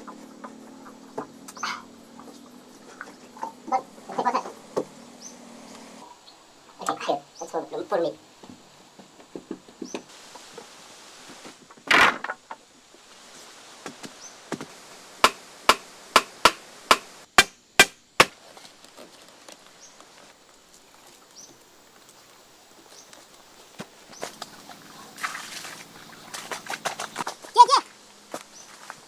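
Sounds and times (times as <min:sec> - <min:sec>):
tool striking wood: 0:14.5 - 0:18.4.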